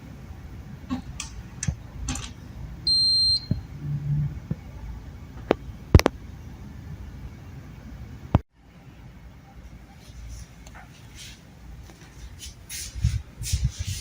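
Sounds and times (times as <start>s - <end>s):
electronic beep: 2.9s - 3.6s.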